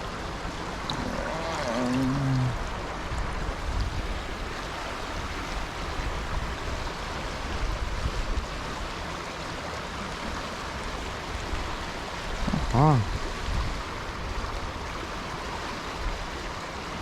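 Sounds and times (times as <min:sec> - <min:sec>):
stream water rushing: 0:00.0 - 0:17.0
wind on microphone: 0:12.3 - 0:14.9.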